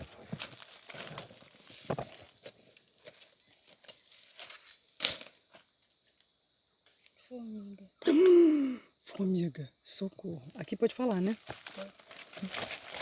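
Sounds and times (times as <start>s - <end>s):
leaves and twigs crackling: 0.0s - 6.3s, 10.3s - 13.0s
high insect hiss: 0.0s - 13.0s.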